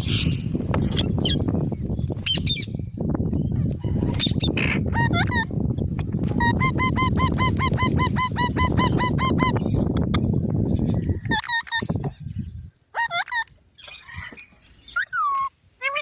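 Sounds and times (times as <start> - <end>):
parrot squawking: 6.4 - 9.7, 13.0 - 13.5.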